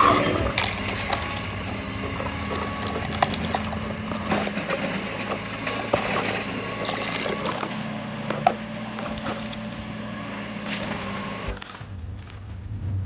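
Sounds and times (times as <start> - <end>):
soil scraped and dropped: 0.0 - 7.6.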